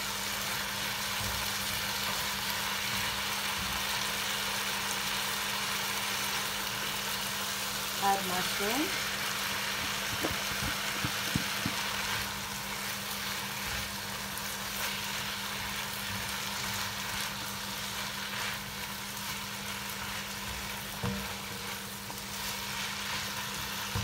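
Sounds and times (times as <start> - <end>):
food sizzling in a pot: 0.0 - 24.0
spatula stirring: 9.9 - 24.0.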